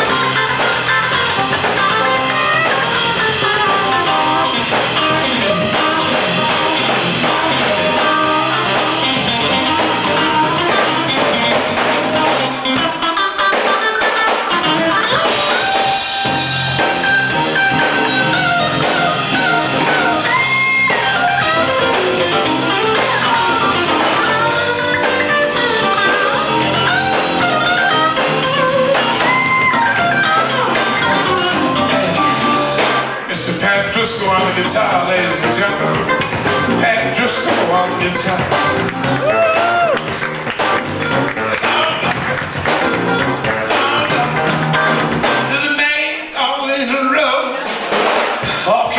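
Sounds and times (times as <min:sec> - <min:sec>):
electric guitar solo: 0:00.0 - 0:33.4, 0:34.4 - 0:45.6
live band playing: 0:00.0 - 0:48.9.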